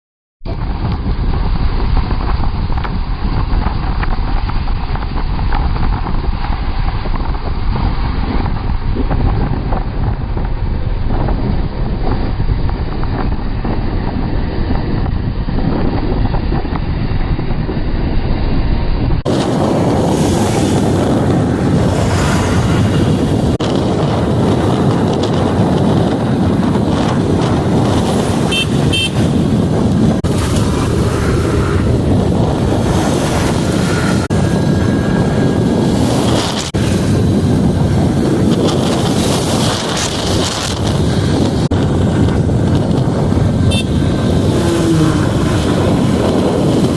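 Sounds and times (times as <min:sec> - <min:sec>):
wind buffeting microphone: 0:00.4 - 0:46.9
heavy truck engine and road noise: 0:00.5 - 0:46.9
high-pitched horn beeps: 0:28.5 - 0:29.4, 0:43.7 - 0:44.0.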